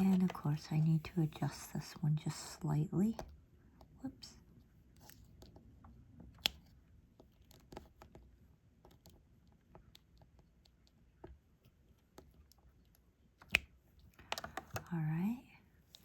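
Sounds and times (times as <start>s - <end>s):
small plastic clicks and taps: 5.0s - 14.9s.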